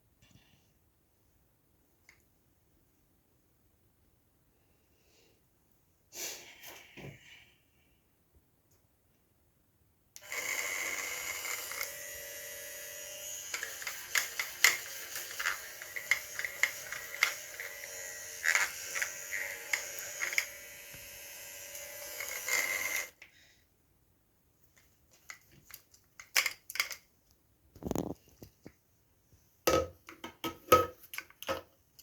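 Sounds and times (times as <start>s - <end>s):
facial brush buzzing: 10.2s - 23.2s.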